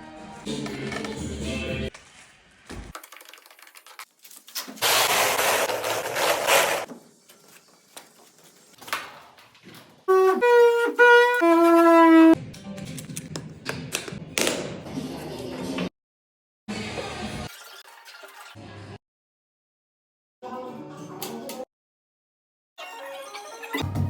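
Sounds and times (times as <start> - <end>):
horn-like instrument notes: 10.1 - 12.4.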